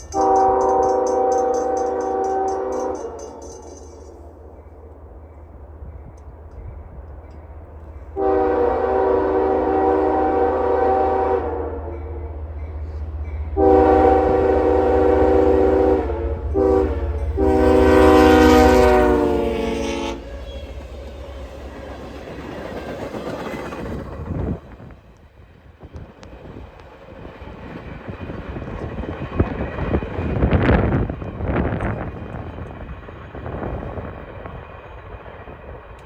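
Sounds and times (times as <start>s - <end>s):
train rumbling: 0.0s - 36.0s
locomotive air horn blasts: 0.1s - 3.4s, 8.2s - 11.9s, 13.6s - 20.4s.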